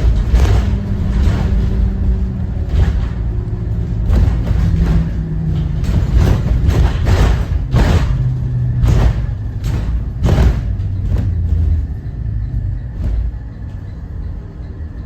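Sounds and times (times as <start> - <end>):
bus body knocks and rattles: 0.0 - 15.0
bus diesel engine rumbling: 0.0 - 15.0.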